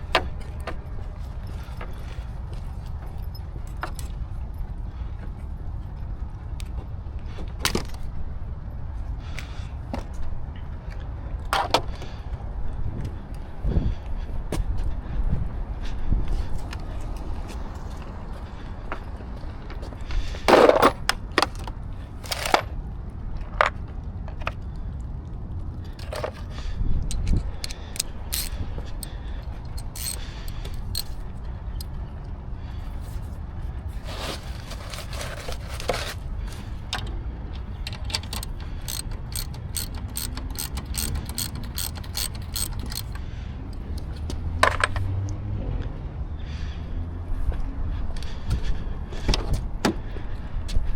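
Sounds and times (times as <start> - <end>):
metallic clicks of hand tools: 27.0 - 31.2, 36.9 - 45.0.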